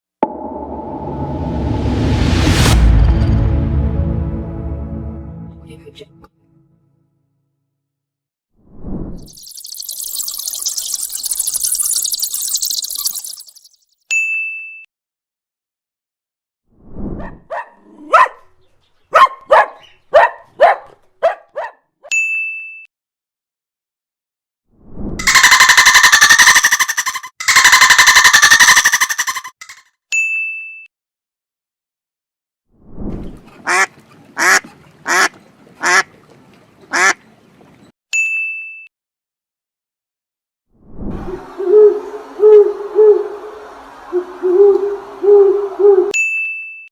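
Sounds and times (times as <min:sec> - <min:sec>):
short low rumble: 0:00.2 - 0:06.3
dog barking: 0:17.2 - 0:18.5, 0:19.1 - 0:21.8
duck quacking: 0:33.6 - 0:36.1, 0:36.9 - 0:37.2.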